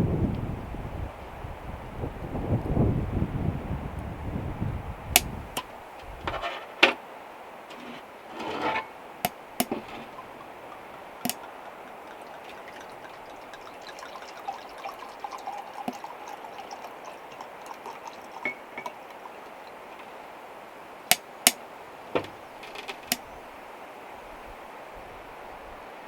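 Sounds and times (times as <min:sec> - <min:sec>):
faint trickling with ticks: 0:09.0 - 0:20.4.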